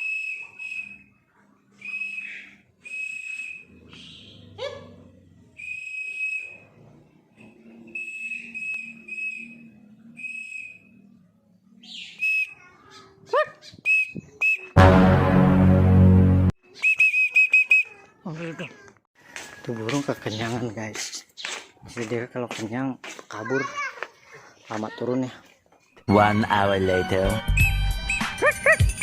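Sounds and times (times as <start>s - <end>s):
person whistling high notes: 27.4s - 29.0s.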